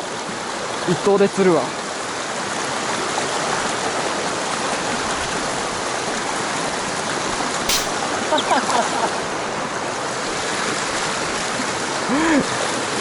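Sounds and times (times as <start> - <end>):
sharp click: 7.7 - 8.0.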